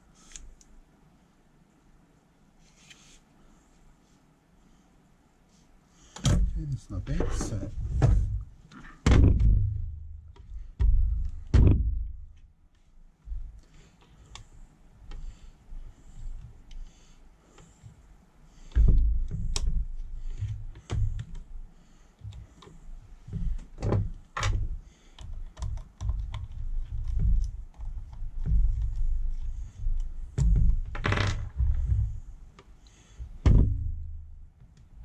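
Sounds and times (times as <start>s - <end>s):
heavier knocks: 7.3s - 12.4s, 33.3s - 34.4s.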